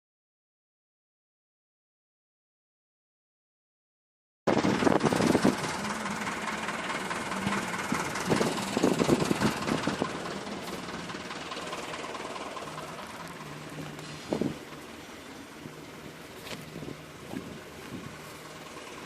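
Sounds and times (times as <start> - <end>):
tractor diesel engine running: 4.5 - 19.0.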